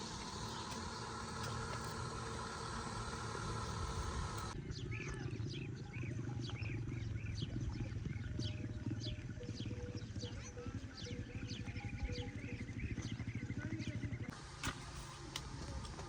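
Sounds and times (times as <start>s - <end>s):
steady even noise: 0.0s - 4.6s
small birds chirping: 0.0s - 14.3s.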